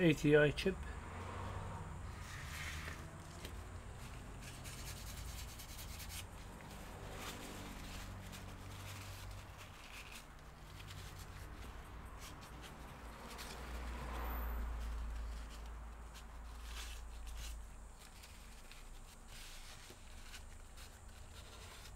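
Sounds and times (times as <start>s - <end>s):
hands rubbing laptop parts: 2.0s - 21.9s.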